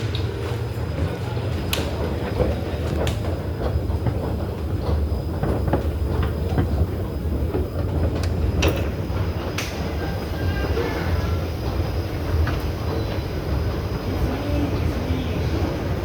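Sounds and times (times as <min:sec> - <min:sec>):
train rumbling on rails: 0:00.0 - 0:16.0
sharp rail clicks: 0:01.6 - 0:03.6, 0:05.6 - 0:11.4.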